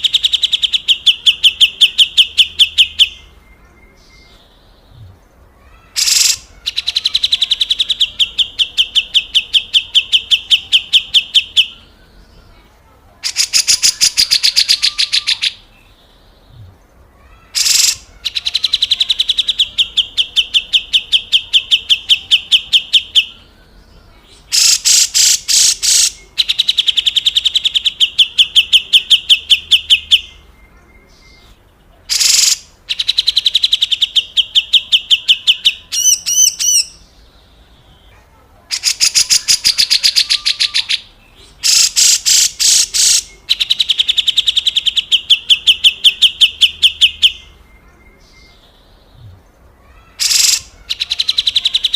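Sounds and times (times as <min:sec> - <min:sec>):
bulbul rasping calls: 0:00.0 - 0:03.4, 0:05.6 - 0:11.9, 0:13.2 - 0:15.6, 0:17.3 - 0:23.5, 0:24.3 - 0:30.5, 0:32.1 - 0:37.0, 0:38.7 - 0:47.6, 0:49.8 - 0:51.9.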